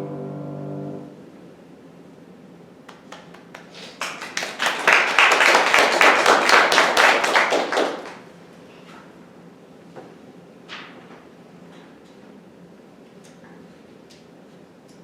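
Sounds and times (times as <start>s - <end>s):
audience applauding: 2.9s - 8.3s.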